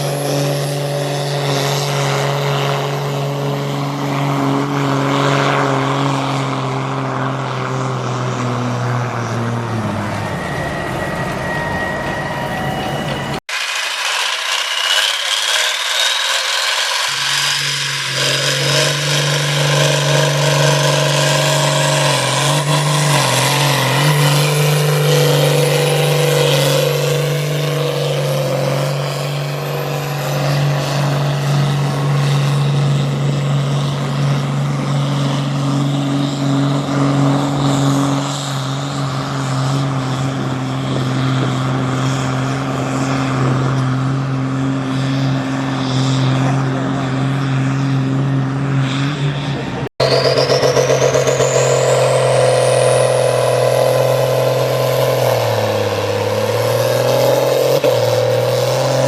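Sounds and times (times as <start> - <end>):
high whine: 0.0 - 59.0
tractor engine at high revs: 0.0 - 59.0.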